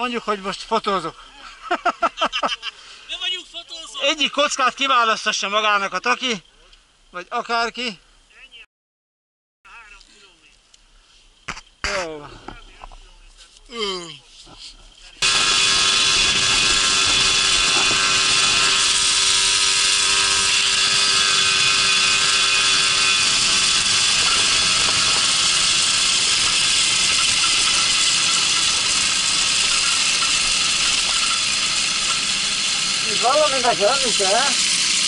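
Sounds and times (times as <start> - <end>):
moped engine running: 15.2 - 35.0.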